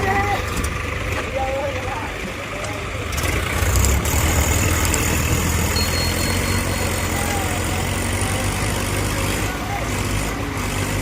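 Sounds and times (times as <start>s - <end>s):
tractor diesel engine droning: 0.0s - 11.0s.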